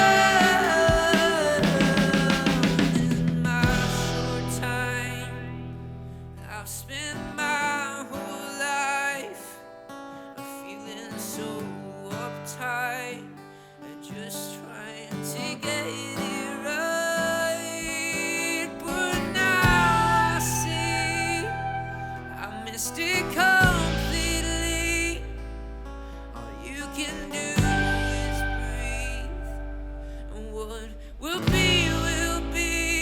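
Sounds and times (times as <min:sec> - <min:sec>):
rock band playing: 0:00.0 - 0:04.8
strummed rhythm guitar: 0:00.0 - 0:33.0
lead guitar bending notes: 0:19.6 - 0:26.6, 0:27.3 - 0:33.0.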